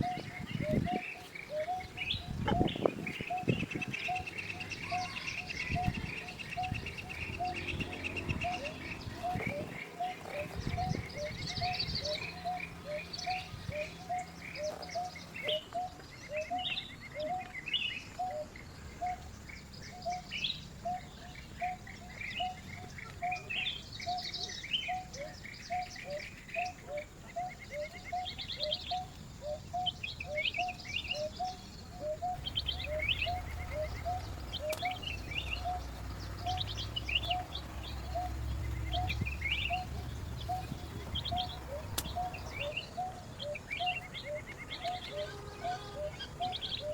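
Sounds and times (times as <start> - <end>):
birds chirping and trilling: 0.0 - 46.9
low repeated bird call: 0.0 - 46.9
low rumble: 32.3 - 43.6.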